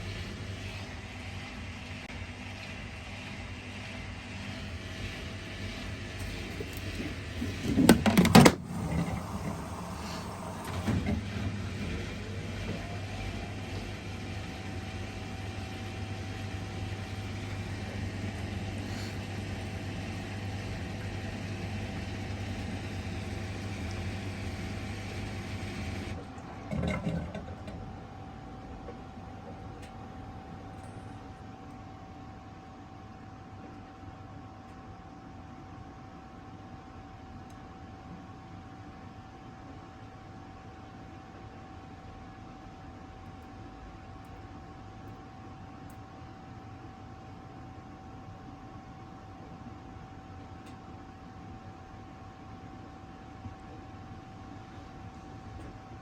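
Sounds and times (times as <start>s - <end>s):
washer-dryer motor hum: 0.0s - 35.6s.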